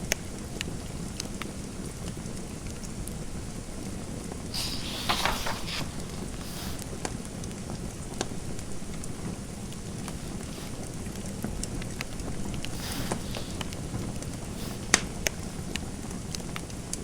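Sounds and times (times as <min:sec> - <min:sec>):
fireplace fire crackling: 0:03.6 - 0:17.0
scratchy rustling: 0:04.5 - 0:07.0, 0:08.7 - 0:15.9.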